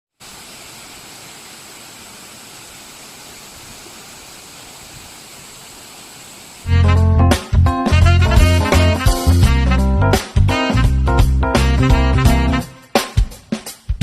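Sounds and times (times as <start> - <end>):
stream and waterfall rushing: 0.1 - 6.7
music: 6.7 - 14.0.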